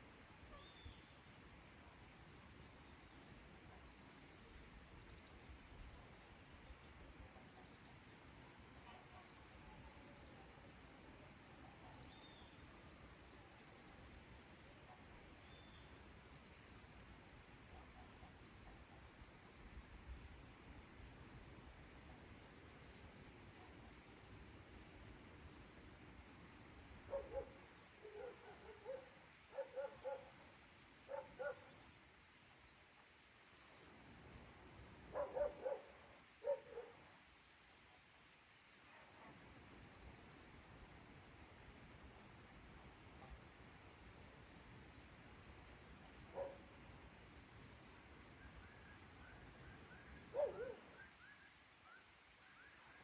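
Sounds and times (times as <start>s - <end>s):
steady high hiss: 0.0s - 53.0s
bird chirping softly: 0.5s - 1.6s, 11.5s - 12.8s, 14.5s - 17.2s
distant dog barking: 27.1s - 30.4s, 31.1s - 31.7s, 35.1s - 37.0s, 46.3s - 46.7s, 50.3s - 51.1s.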